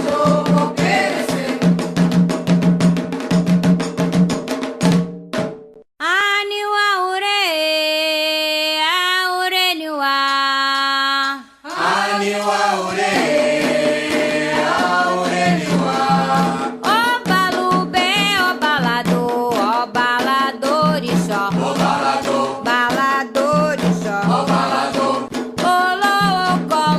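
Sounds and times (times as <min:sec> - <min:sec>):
chorus singing: 0:00.0 - 0:01.8, 0:11.3 - 0:17.4, 0:21.3 - 0:25.3
drums and percussion: 0:00.0 - 0:05.9, 0:11.7 - 0:26.9.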